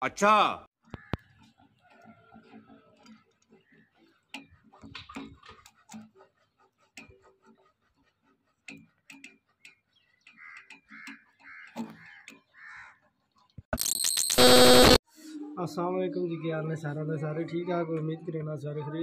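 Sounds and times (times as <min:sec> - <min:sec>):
bird calling: 0:09.5 - 0:13.1.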